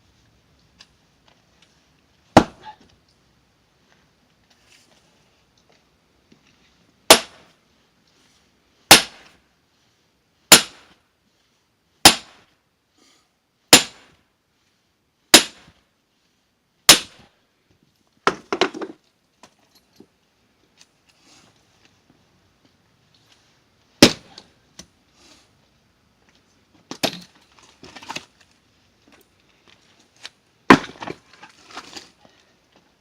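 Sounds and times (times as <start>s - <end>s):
axe splitting firewood: 2.3s - 2.8s, 7.1s - 7.5s, 8.9s - 9.3s, 10.5s - 10.9s, 12.0s - 12.4s, 13.7s - 14.1s, 15.3s - 15.7s, 16.9s - 17.3s, 18.2s - 19.0s, 24.0s - 24.9s, 26.8s - 28.3s, 30.6s - 32.2s.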